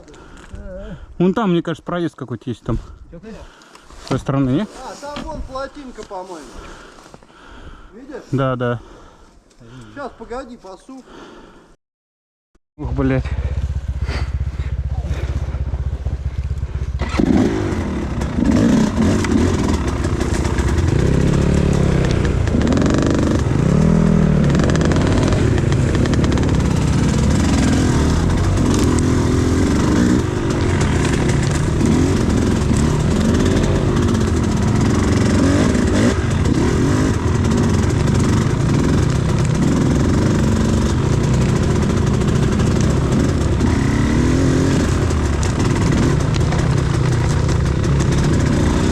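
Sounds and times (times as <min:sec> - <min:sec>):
motorcycle engine revving: 0:12.8 - 0:48.9.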